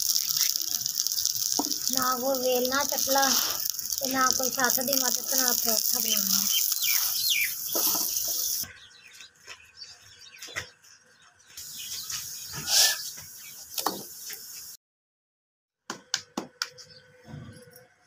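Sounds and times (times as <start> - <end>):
flatbread sizzling on a griddle: 0.0 - 8.7, 11.6 - 14.8.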